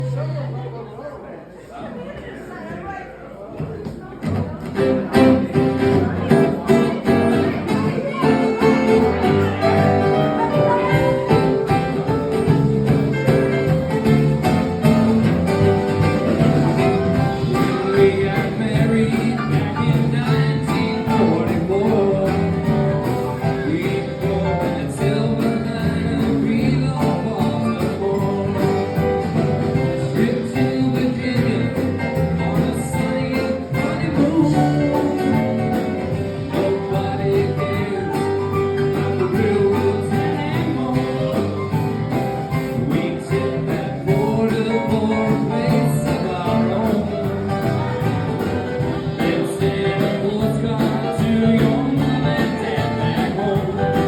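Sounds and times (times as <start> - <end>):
acoustic guitar playing: 4.3 - 54.0
person singing: 4.8 - 54.0.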